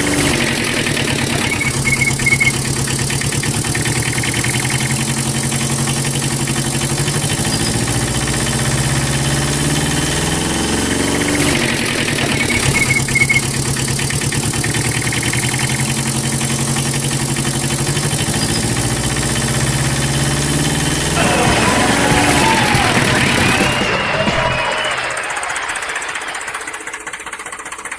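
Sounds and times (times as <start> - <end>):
mini tractor motor droning: 0.0 - 27.9.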